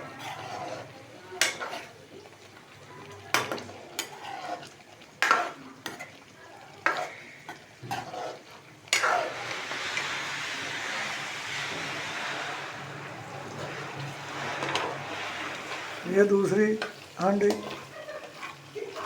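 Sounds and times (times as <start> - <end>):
food sizzling in hot oil: 0.0 - 19.0
metal spoon clanking on pan: 1.4 - 1.9, 3.3 - 6.2, 16.8 - 19.0.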